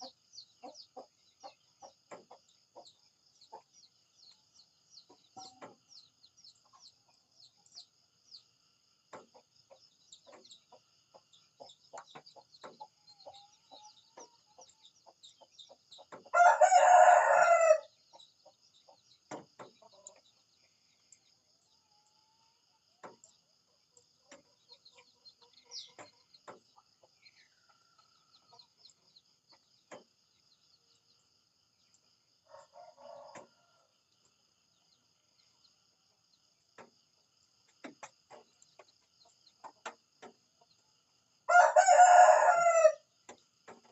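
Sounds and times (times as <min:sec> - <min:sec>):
rooster crowing: 0:16.3 - 0:17.9, 0:41.5 - 0:43.0.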